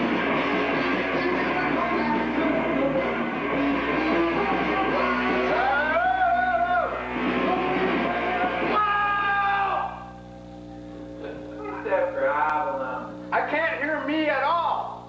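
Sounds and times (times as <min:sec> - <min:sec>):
rock band with electric guitar: 0:00.0 - 0:11.7.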